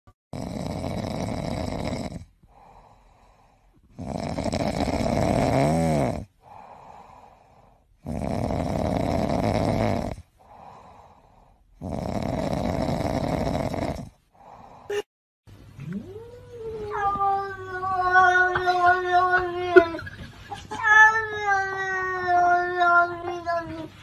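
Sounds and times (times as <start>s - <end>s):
cat snoring: 0.4s - 11.0s, 11.8s - 14.7s.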